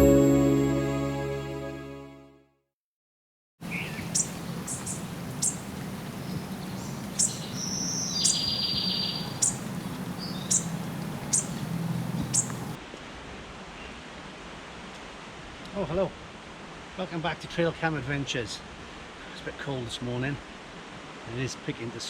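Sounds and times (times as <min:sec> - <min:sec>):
bird trill: 0:03.7 - 0:12.8
sharp high bird calls: 0:03.7 - 0:12.8.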